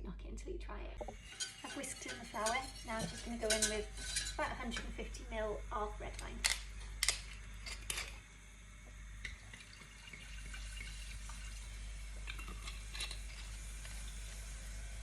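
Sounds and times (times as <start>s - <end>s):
wine pouring into a saucepan: 9.0s - 15.0s.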